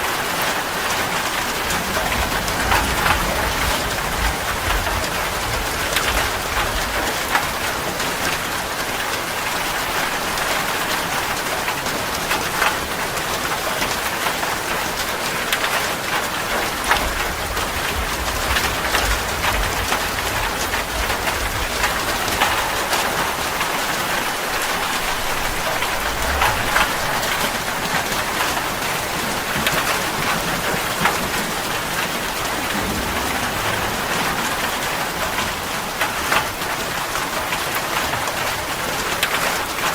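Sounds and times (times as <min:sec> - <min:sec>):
heavy rain falling: 0:00.0 - 0:39.9
low rumble: 0:01.6 - 0:07.6, 0:16.9 - 0:23.5, 0:24.8 - 0:28.5, 0:29.3 - 0:36.4.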